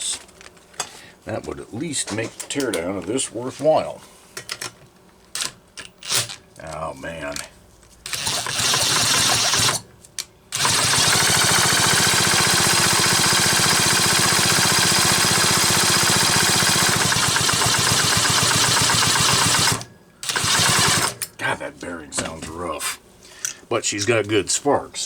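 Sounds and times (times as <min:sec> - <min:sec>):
chainsaw engine spinning over: 0:08.2 - 0:09.8, 0:10.6 - 0:21.2.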